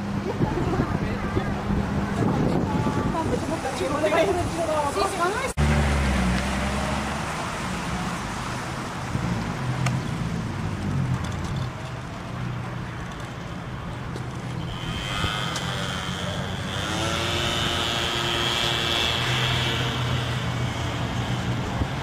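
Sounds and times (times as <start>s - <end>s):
road and wind noise: 0.0s - 22.0s
car engine droning: 14.2s - 22.0s
high-pitched engine whine: 14.5s - 22.0s.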